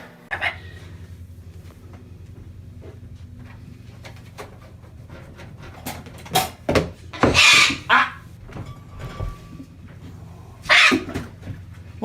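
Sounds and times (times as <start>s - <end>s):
bird giving harsh calls: 7.2s - 8.2s, 10.7s - 11.0s.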